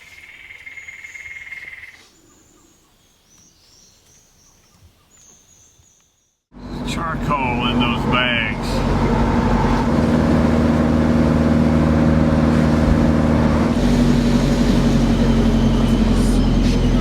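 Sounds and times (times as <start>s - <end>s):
vehicle engine running: 6.5s - 17.0s.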